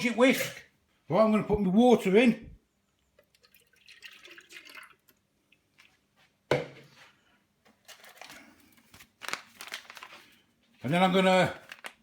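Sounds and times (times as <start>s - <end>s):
water poured into bowl: 3.2s - 5.2s
container knocking on worktop: 6.5s - 6.9s.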